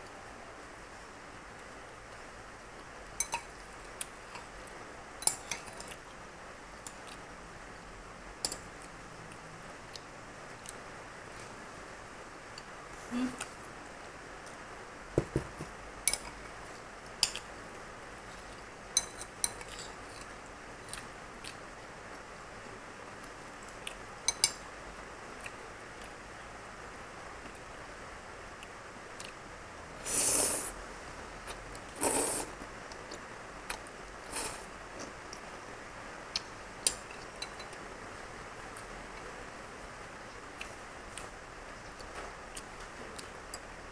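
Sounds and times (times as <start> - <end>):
fork tapping container: 15.2 - 15.7
noisy eating sounds: 16.1 - 22.2, 28.5 - 43.8.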